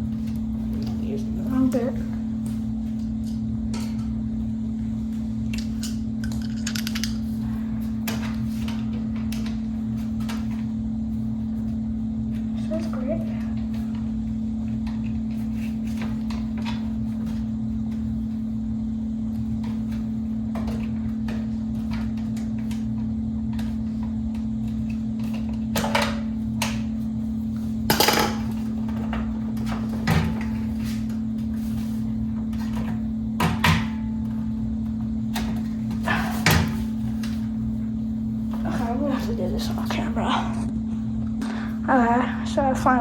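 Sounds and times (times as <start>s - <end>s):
steady low hum: 0.0s - 43.0s
fan parts knocking and clattering: 27.8s - 37.6s.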